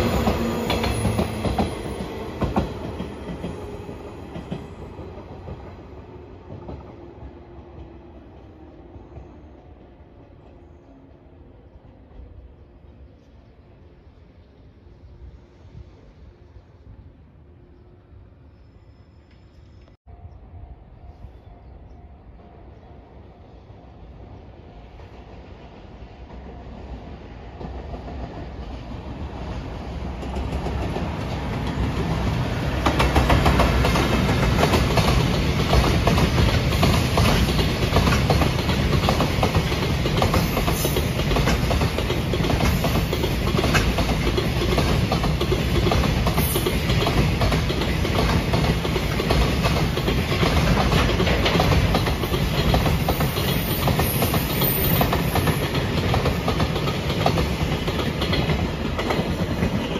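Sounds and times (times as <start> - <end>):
freight train wheels rumbling: 0.0 - 18.4, 19.2 - 59.9
wheels clacking over rail joints: 27.6 - 59.9.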